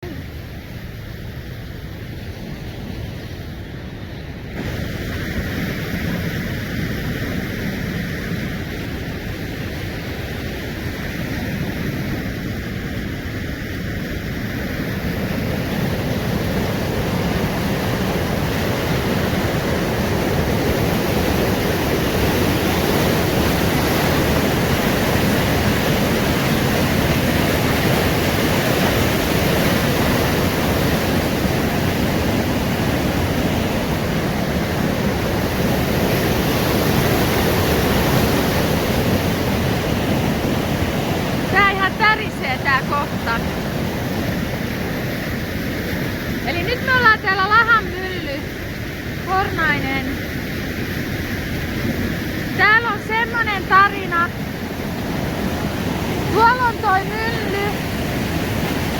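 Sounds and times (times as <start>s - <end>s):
river rapids rushing: 14.9s - 58.9s.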